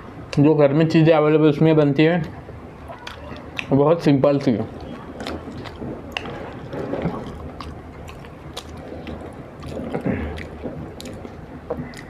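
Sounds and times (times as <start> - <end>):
mouth smacks: 2.9 - 3.8, 4.8 - 12.0
chewing soft food: 4.8 - 12.0.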